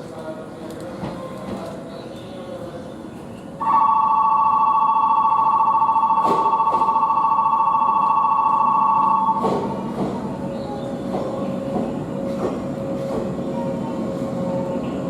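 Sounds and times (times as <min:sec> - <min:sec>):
electronic departure bell trilling: 0:03.6 - 0:09.4.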